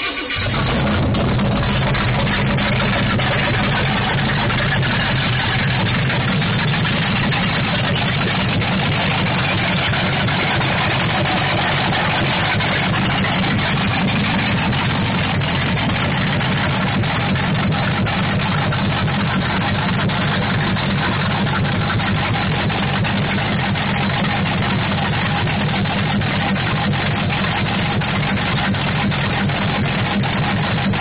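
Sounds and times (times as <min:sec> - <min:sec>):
loud car engine idling: 0:00.0 - 0:31.0.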